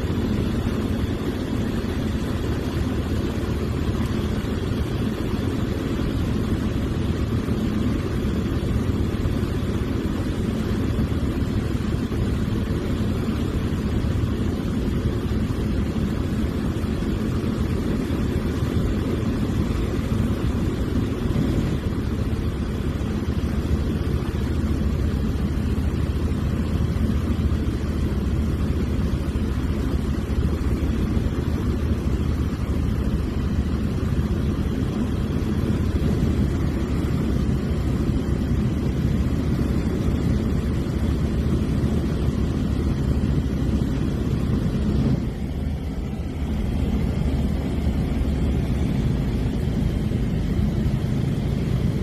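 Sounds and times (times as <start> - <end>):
propeller airplane engine drone: 0.0 - 52.0.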